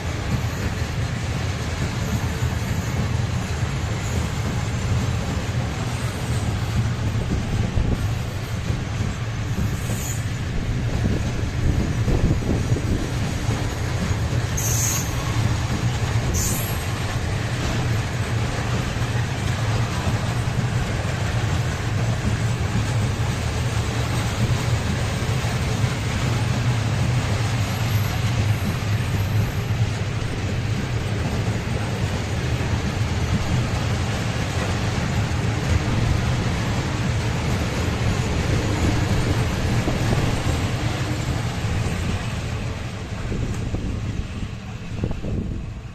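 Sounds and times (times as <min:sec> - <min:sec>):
train wheels rumbling on rails: 0:00.0 - 0:45.9
high-pitched wheel squeals: 0:14.6 - 0:15.5.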